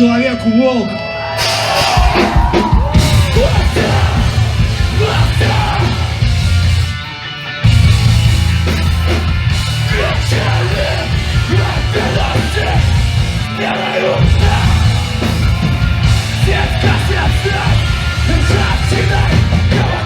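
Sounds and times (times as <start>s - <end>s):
punk band playing: 0.9s - 20.0s
shouted vocals: 1.2s - 6.8s, 9.9s - 20.0s.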